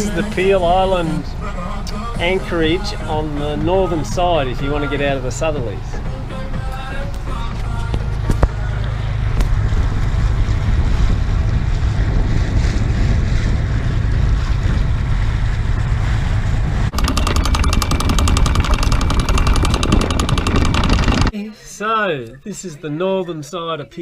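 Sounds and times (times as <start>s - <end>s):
boat engine rumble: 0.0s - 21.4s
wind buffeting microphone: 7.2s - 21.3s
fast even pulsing: 16.5s - 21.4s.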